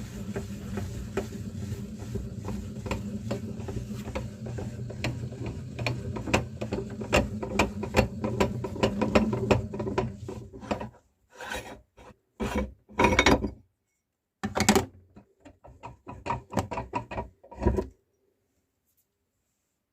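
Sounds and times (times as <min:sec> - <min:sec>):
meat grinder crunching biscuits: 0:00.0 - 0:10.5.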